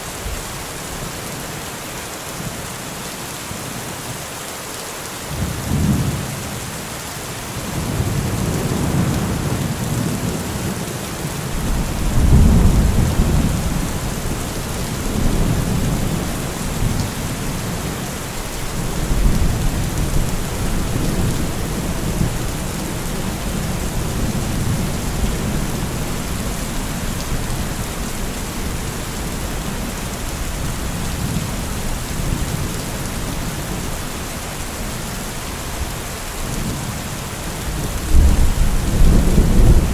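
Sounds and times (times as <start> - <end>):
heavy rain falling: 0.0 - 39.9
thunder rumbling: 11.5 - 18.0, 37.7 - 39.9.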